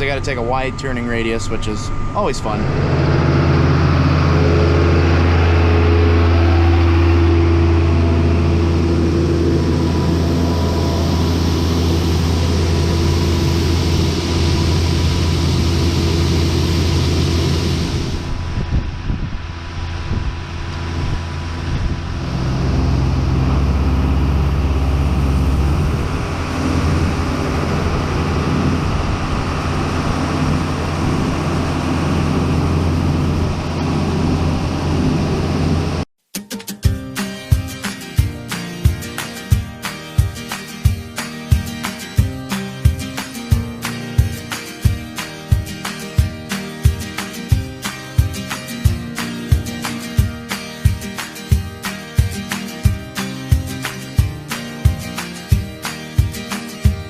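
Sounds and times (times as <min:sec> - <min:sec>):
tractor engine under load: 0:01.7 - 0:18.4, 0:19.9 - 0:36.0.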